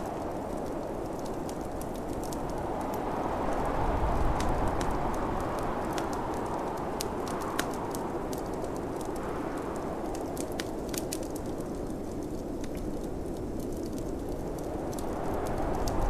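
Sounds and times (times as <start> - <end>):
snowstorm wind rushing: 0.0 - 16.0
wood fire crackling and popping: 0.0 - 16.0.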